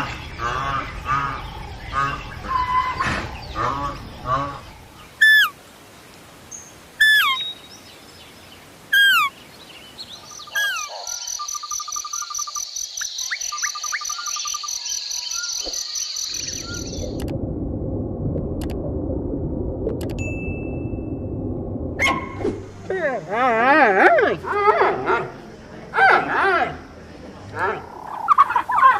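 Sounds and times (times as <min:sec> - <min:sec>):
low rushing noise: 0:16.3 - 0:23.4.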